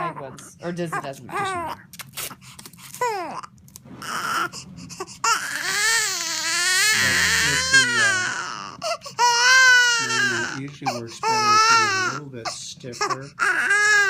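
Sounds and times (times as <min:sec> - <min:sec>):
baby crying: 0:03.0 - 0:14.0.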